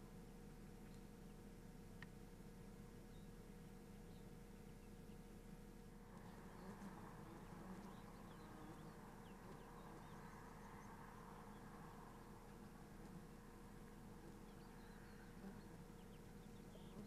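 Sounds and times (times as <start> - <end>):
faint hum: 0.0 - 17.0
faint bird chirps: 3.0 - 5.4, 6.1 - 17.0.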